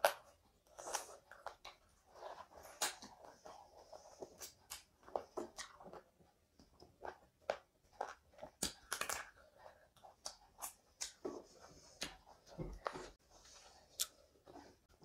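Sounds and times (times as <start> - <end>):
chewing and wet mouth sounds: 0.0 - 11.2, 13.8 - 14.2
lip smacks and clicks: 7.5 - 9.4, 10.1 - 11.2, 13.9 - 14.2.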